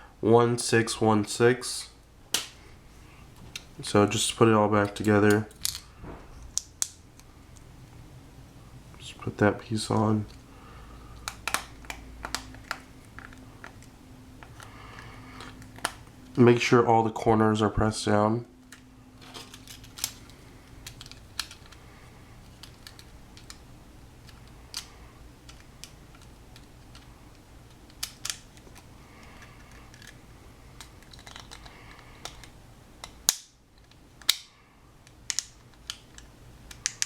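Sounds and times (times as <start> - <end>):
plastic casing clicks and snaps: 11.2 - 14.7, 19.4 - 21.8, 24.2 - 27.1, 27.7 - 30.2, 30.8 - 37.0.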